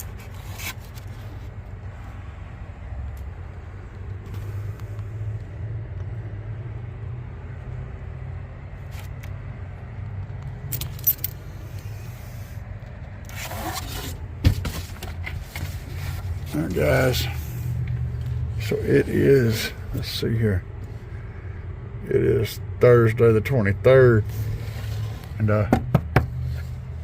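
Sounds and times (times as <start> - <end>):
steady low hum: 0.0 - 27.0
metallic clinks: 10.6 - 11.5
small metal items jangling: 10.6 - 11.6.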